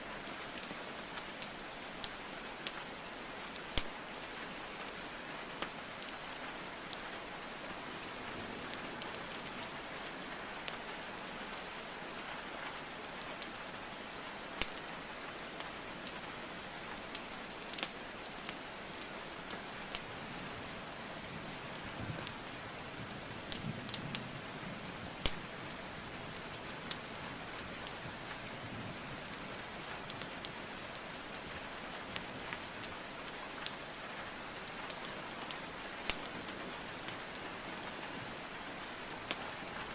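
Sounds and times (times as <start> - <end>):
steady rain: 0.0 - 39.9
wood fire crackling: 0.2 - 39.9
sharp pops from burning logs: 3.4 - 4.0, 14.6 - 14.9, 25.2 - 25.8, 34.6 - 36.4.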